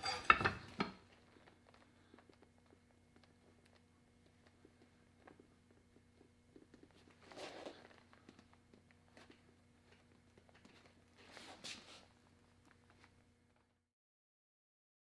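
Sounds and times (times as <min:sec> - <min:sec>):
faint steady hum: 0:00.0 - 0:13.8
soft rubbing sounds: 0:04.3 - 0:09.5, 0:10.4 - 0:12.2.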